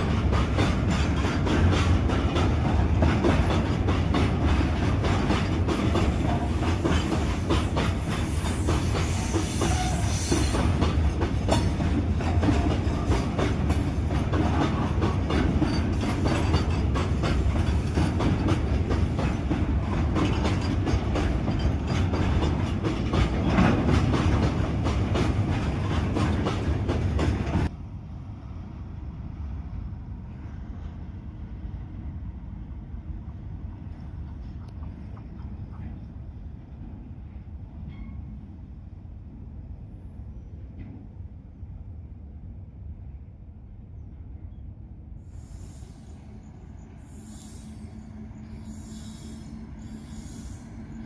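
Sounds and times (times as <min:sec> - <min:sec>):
train wheels clattering: 0:00.0 - 0:27.7.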